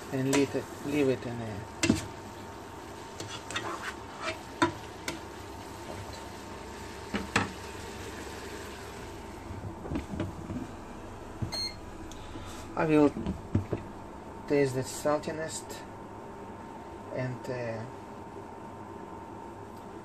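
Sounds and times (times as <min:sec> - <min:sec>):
cabbage sizzling in a pot: 0:00.0 - 0:09.4
wooden spoon stirring: 0:03.0 - 0:06.4.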